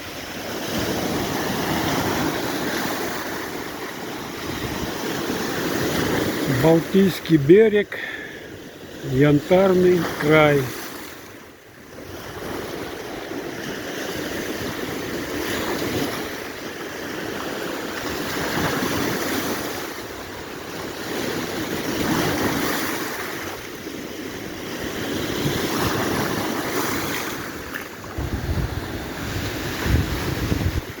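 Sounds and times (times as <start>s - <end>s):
waves breaking on shore: 0.0s - 31.0s
wind buffeting microphone: 28.0s - 31.0s.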